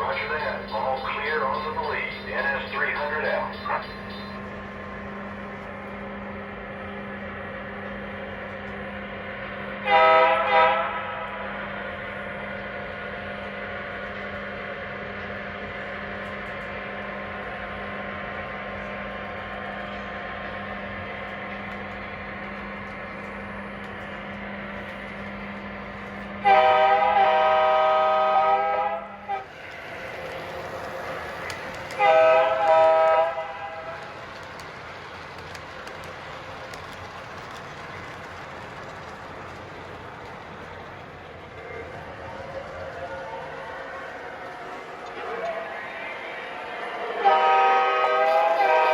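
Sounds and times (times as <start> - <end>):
model locomotive engine rumble: 0.0 - 48.9
train horn blasts: 9.8 - 11.5, 26.4 - 29.5, 31.9 - 34.0, 47.1 - 48.9.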